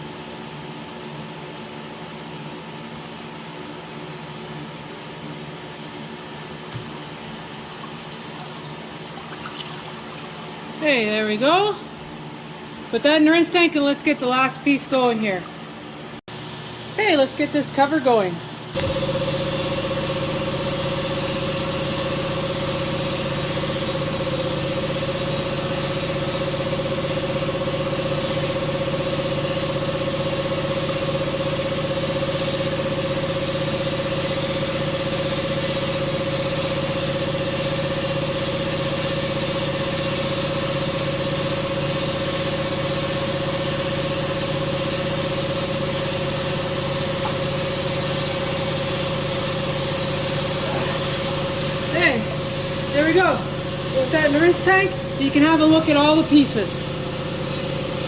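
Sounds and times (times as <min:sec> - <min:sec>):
motor humming: 0:18.8 - 0:25.0.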